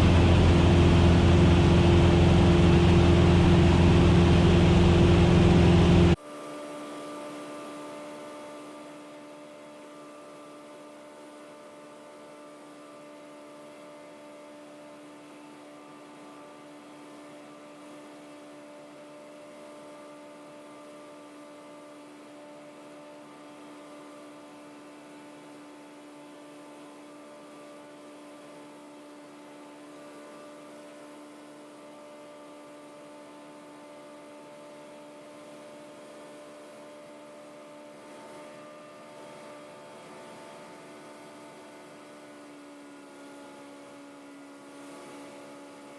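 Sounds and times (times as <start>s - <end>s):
cockpit hum with fixed tones: 0.0s - 6.2s.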